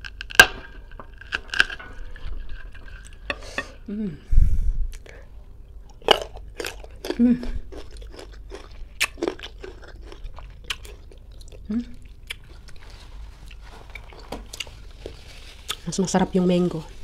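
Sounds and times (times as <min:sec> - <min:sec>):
crunchy fruit bites: 0:05.9 - 0:12.6.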